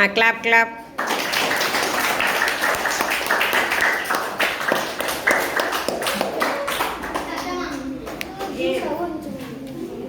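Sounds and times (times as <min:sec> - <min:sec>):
children clapping: 0:00.9 - 0:08.6.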